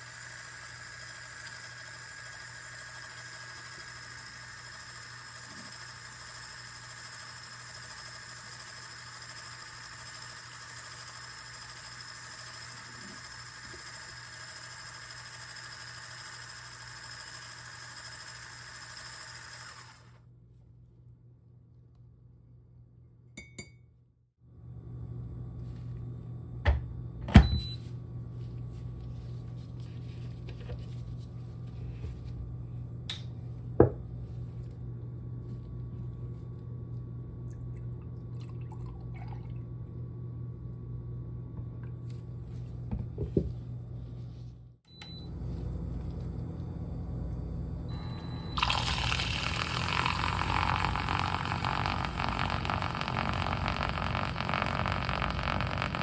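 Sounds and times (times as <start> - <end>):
steady low hum: 38.8 - 56.0.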